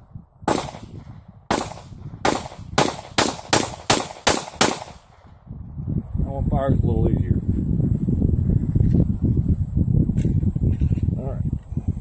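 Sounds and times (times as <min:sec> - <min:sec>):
pistol shots: 0:00.5 - 0:05.2.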